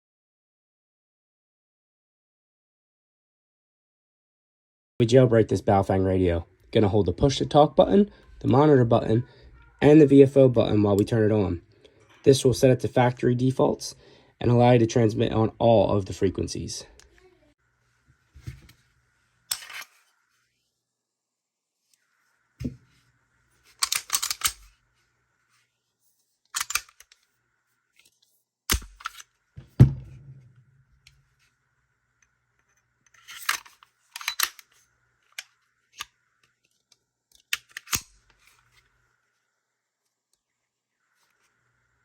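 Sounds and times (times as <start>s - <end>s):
heavier thumps: 29.6s - 30.9s.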